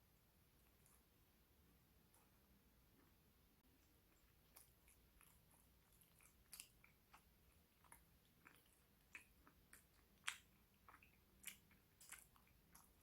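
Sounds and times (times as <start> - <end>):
chewing close-up: 3.7 - 13.0
wet mouth clicks: 3.8 - 13.0.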